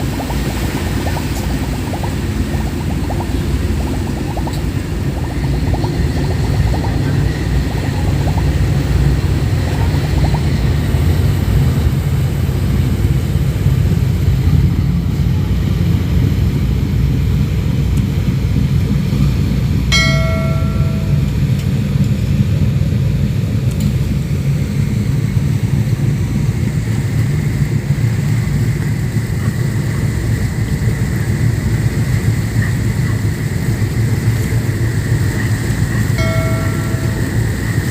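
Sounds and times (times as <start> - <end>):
ship diesel engines rumbling: 0.0 - 37.9.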